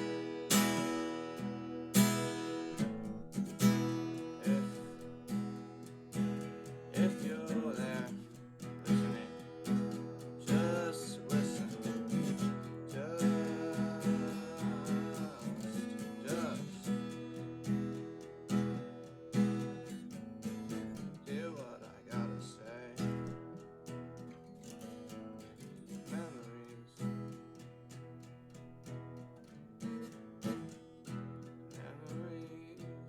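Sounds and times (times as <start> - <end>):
person singing: 0.0 - 18.0, 20.8 - 23.6
acoustic guitar strumming: 0.0 - 33.0.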